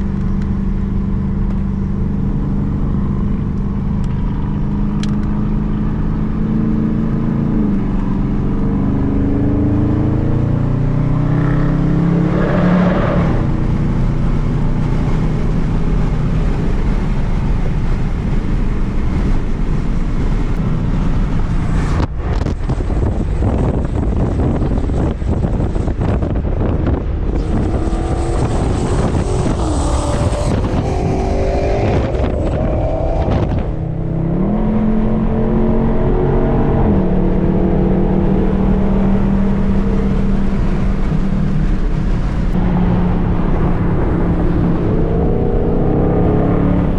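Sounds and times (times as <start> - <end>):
car engine accelerating: 0.0 - 46.9
wind buffeting microphone: 13.3 - 46.9.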